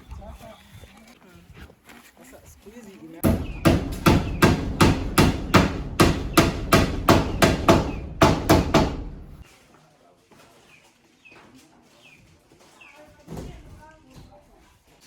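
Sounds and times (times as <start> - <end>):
sharp blows: 3.2 - 9.4.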